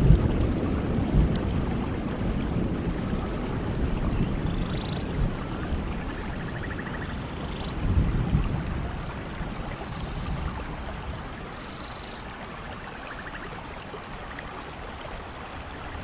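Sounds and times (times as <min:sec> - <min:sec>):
distant thunder rumble: 0:00.0 - 0:11.7
rain falling: 0:00.0 - 0:16.0.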